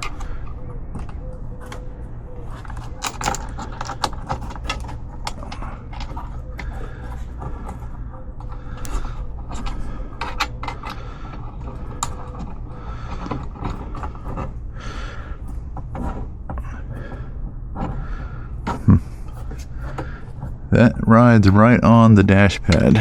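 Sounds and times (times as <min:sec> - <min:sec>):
metal bolts clicking and scraping: 0:00.0 - 0:14.6
steady low rumble: 0:00.0 - 0:23.0.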